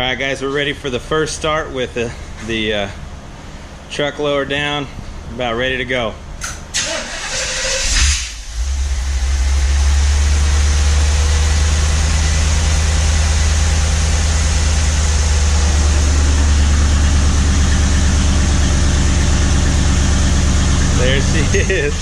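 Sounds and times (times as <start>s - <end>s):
engine catching: 6.4s - 22.0s
engine idling with deep exhaust: 8.3s - 22.0s.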